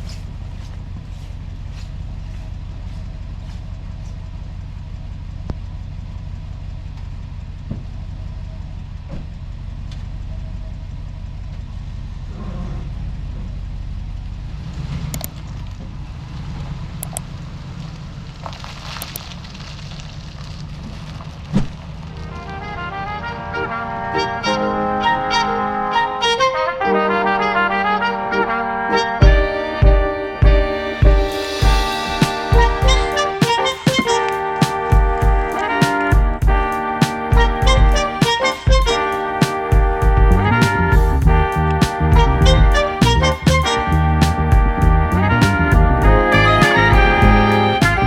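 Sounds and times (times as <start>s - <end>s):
low motor hum: 0.0s - 14.6s, 39.8s - 48.0s.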